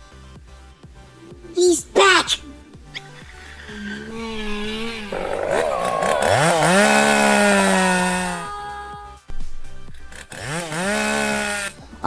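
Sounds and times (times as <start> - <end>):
chainsaw revving: 4.7 - 8.5, 10.2 - 11.7.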